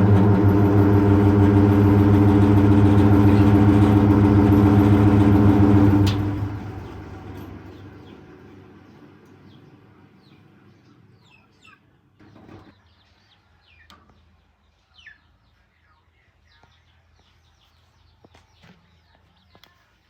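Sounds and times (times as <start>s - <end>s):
low rumble: 0.0s - 8.2s
steady low hum: 0.0s - 10.8s.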